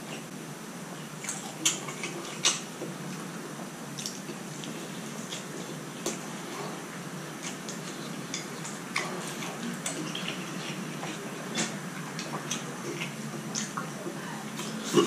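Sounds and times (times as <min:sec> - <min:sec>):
wet chewing clicks and smacks: 0:04.0 - 0:06.2, 0:07.4 - 0:14.0.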